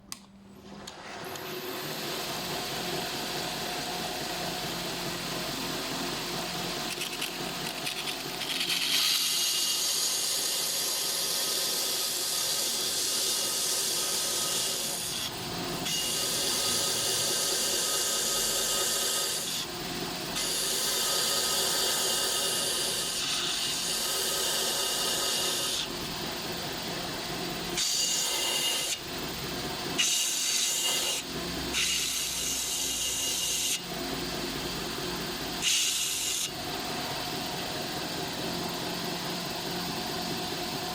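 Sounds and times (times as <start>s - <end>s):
belt grinder running: 1.2s - 37.7s
grinding a wooden pencil: 6.8s - 19.7s, 20.4s - 25.9s.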